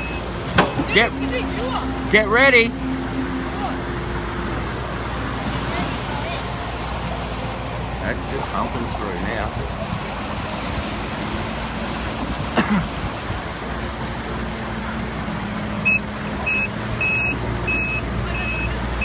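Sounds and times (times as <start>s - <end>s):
reversing alarm beeping: 0.0s - 1.2s, 15.8s - 19.0s
diesel engine humming: 0.0s - 19.0s.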